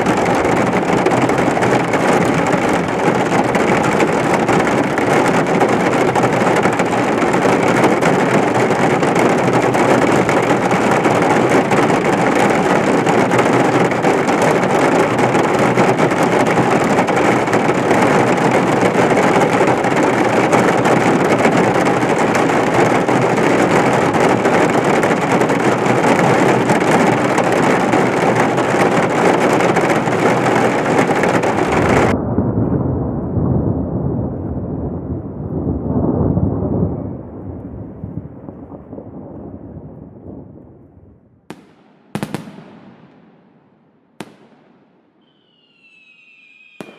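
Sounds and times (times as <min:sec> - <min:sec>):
heavy rain hissing: 0:00.0 - 0:32.2
low rumble of thunder: 0:00.0 - 0:41.5.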